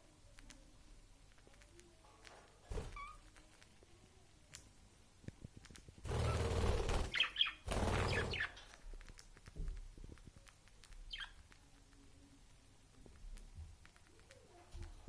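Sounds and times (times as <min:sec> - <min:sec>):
loud rustling: 0:06.0 - 0:08.6
budgerigars chirping: 0:06.2 - 0:08.6.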